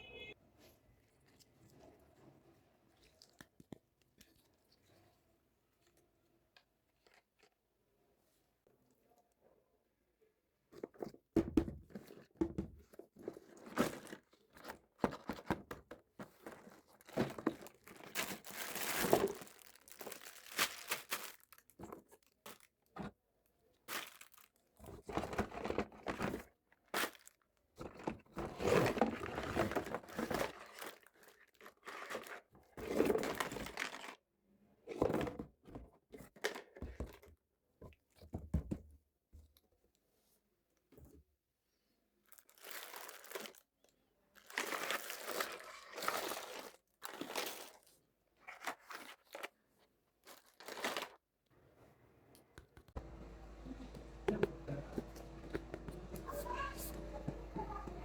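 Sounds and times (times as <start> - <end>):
plastic packaging crinkling and tearing: 16.7 - 22.8, 23.9 - 24.7, 29.2 - 32.4, 42.3 - 43.7, 44.4 - 47.9, 50.2 - 51.2.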